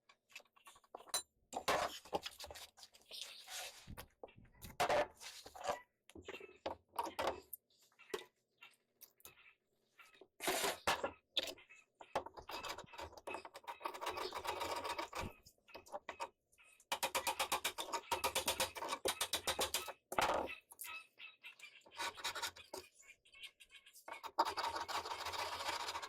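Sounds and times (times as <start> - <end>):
hand tools knocking and scraping wood: 16.9 - 20.6.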